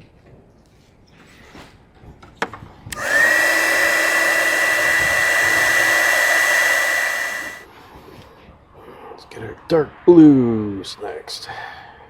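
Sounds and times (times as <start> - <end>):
heat gun fan whine: 2.9 - 7.6.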